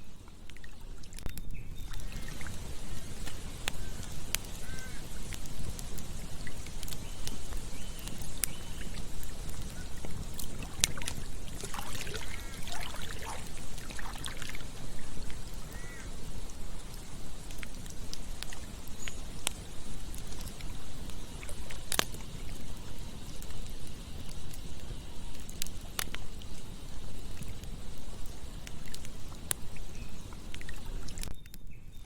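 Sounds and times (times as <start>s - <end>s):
campfire crackling and popping: 0.0s - 32.0s
river flowing: 1.9s - 23.2s.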